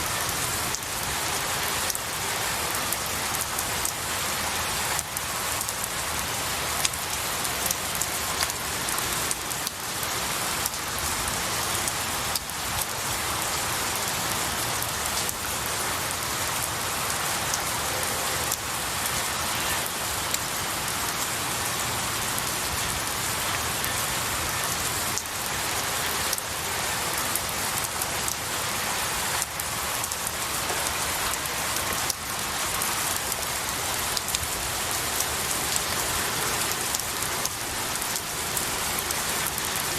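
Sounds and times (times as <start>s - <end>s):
rain falling on pine branches: 0.0s - 39.9s
raindrops ticking: 6.8s - 15.4s, 29.2s - 39.9s.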